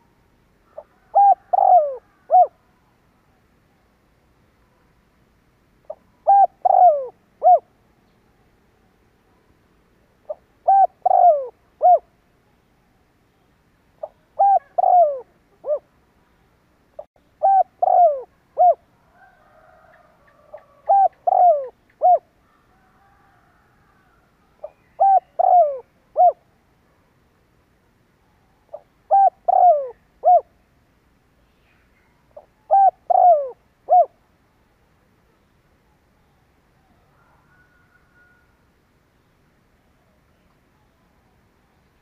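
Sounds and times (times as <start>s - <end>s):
dove cooing: 0.6s - 2.6s, 5.8s - 7.7s, 10.3s - 12.1s, 14.0s - 15.9s, 17.0s - 26.5s, 28.7s - 30.6s, 32.4s - 34.2s.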